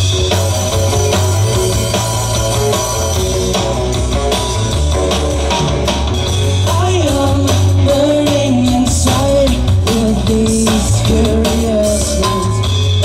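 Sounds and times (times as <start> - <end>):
lead guitar melody: 0.0 - 9.9
bass guitar: 0.0 - 13.0
drum kit: 0.0 - 13.0.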